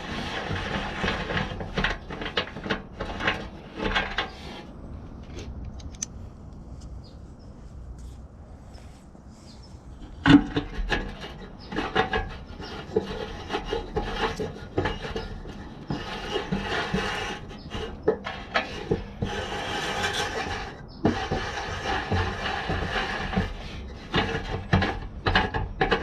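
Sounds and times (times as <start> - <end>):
tools scraping and rasping: 0.0 - 5.5, 9.5 - 26.0
sharp clicks and knocks: 5.1 - 6.9.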